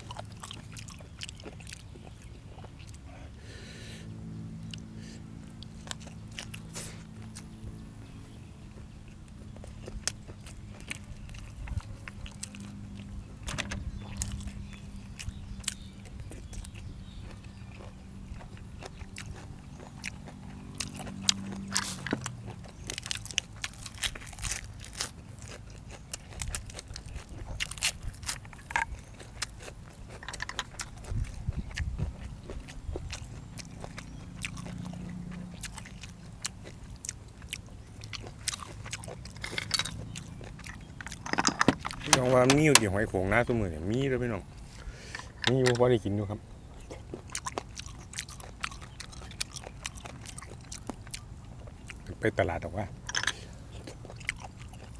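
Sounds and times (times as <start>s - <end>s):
chewing and crunching food: 0.0s - 54.9s
low droning hum: 0.0s - 54.9s.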